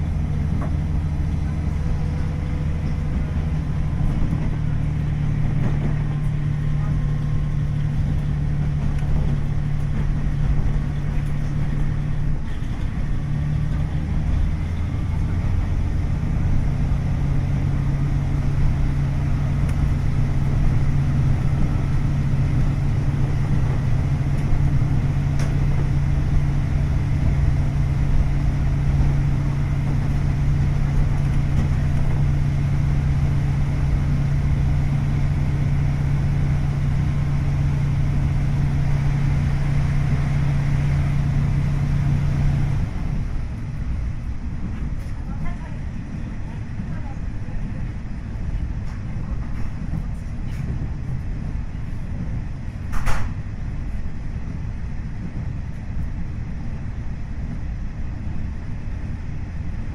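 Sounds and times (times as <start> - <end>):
diesel railcar engine running: 0.0 - 59.9.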